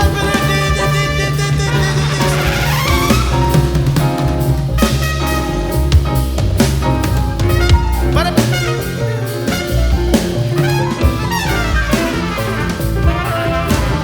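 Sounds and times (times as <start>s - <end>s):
saxophone runs: 0.0s - 4.0s
trumpet runs: 0.0s - 6.3s, 7.3s - 14.0s
double bass: 0.0s - 14.0s
drum kit: 0.0s - 14.0s
piano: 0.0s - 14.0s.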